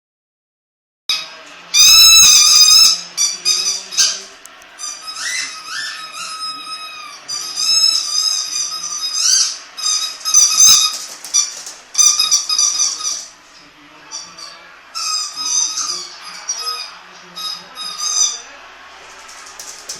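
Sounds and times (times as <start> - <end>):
dog whining: 4.8 - 13.3.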